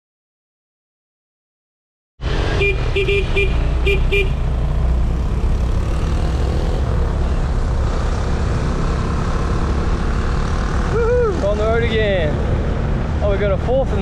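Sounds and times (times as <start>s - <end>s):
vehicle horn beeps: 2.5s - 4.4s.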